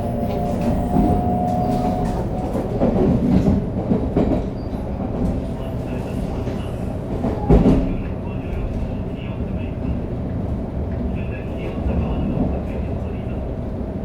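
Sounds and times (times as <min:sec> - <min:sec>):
train inverter whine: 0:00.0 - 0:09.8
train wheels rumbling on rails: 0:00.0 - 0:14.0.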